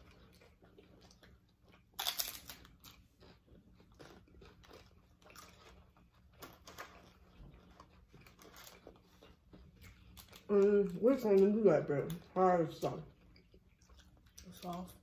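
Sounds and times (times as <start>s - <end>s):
taco crunching bite: 0.0s - 10.5s
crunchy chewing: 0.0s - 12.3s, 13.0s - 15.0s.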